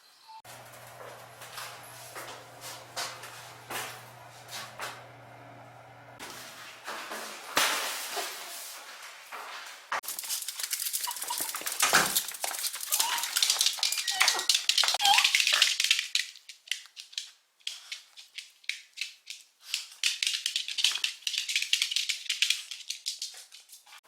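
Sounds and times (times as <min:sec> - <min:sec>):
small objects clicking and rattling: 0:10.0 - 0:24.0.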